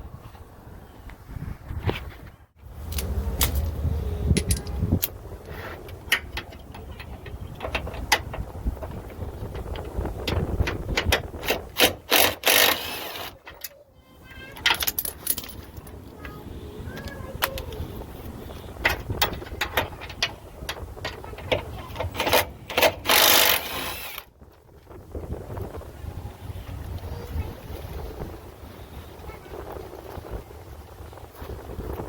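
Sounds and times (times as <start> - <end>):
ratchet and tools clicking and clanking: 2.9 - 13.8, 14.5 - 16.0, 18.7 - 24.3.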